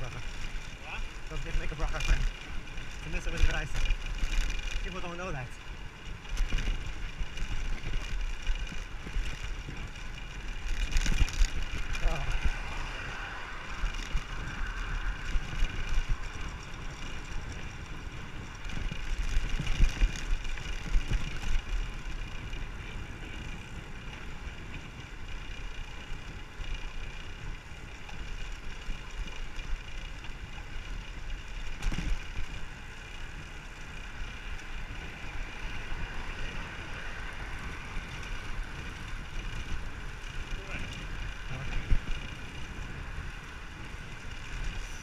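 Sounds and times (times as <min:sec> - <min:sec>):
road and tyre noise: 0:00.0 - 0:45.0
wind buffeting microphone: 0:00.0 - 0:45.0.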